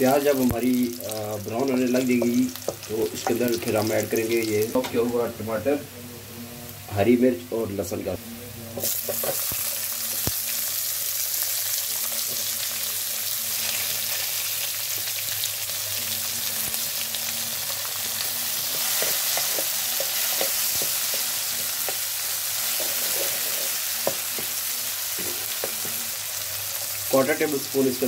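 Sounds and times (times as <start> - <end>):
vegetables sizzling in oil: 0.0 - 5.8, 7.9 - 28.0
wooden spoon scraping pan: 22.7 - 23.8.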